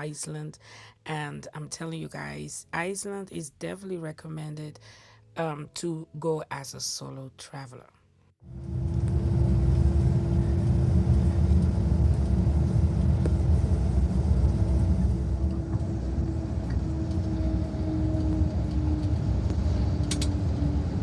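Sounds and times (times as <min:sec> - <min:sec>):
bus engine and road rumble: 0:08.4 - 0:21.0
faint steady hum: 0:08.5 - 0:21.0.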